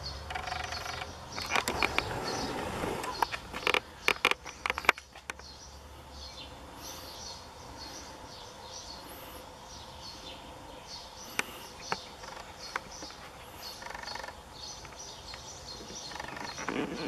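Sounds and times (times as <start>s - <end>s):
birds chirping: 0.0s - 17.0s
sharp clicks and knocks: 3.0s - 5.5s.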